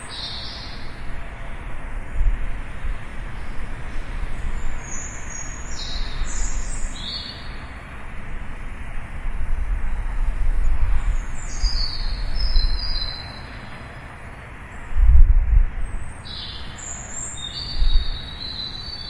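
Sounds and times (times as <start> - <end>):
birds chirping: 0.0 - 1.7, 2.7 - 7.8, 10.7 - 14.9, 15.8 - 19.0
steady low rumble: 0.0 - 18.3.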